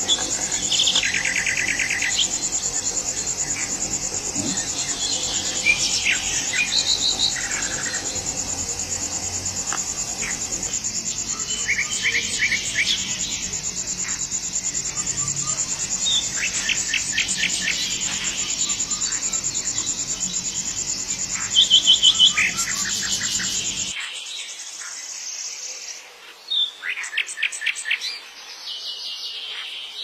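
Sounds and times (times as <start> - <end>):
birds chirping: 0.0 - 24.0
insects trilling: 0.0 - 28.1.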